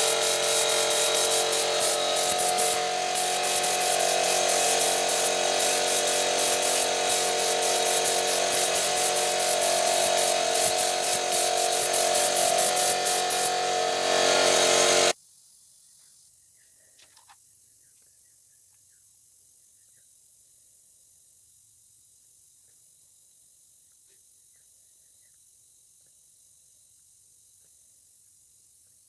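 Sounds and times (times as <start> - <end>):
small power tool grinding: 0.0 - 15.2.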